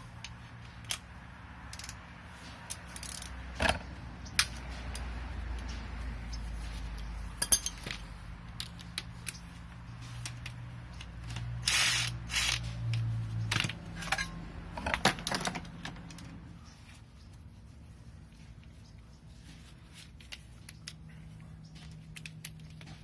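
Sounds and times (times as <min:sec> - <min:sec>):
ratchet wrench clicking: 0:01.7 - 0:02.0, 0:02.6 - 0:03.4, 0:10.2 - 0:13.1
metal hand tools clinking: 0:07.4 - 0:09.4.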